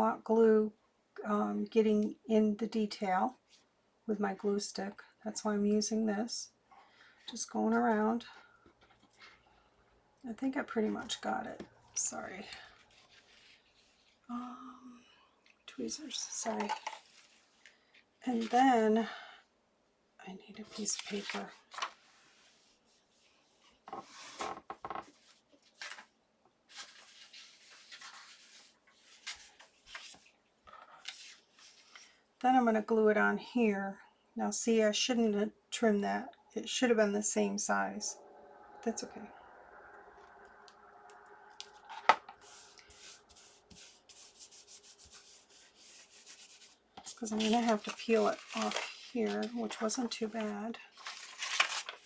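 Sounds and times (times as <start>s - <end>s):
paper rustling and rubbing: 12.6s - 14.3s, 20.7s - 26.1s, 26.7s - 32.1s, 41.6s - 52.0s
glue stick scratching on paper: 42.4s - 46.8s.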